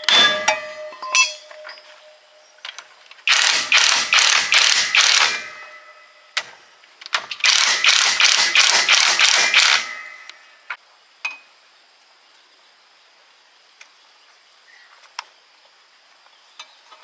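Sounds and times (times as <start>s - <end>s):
ratchet wrench clicking: 3.3s - 5.6s, 7.4s - 10.4s.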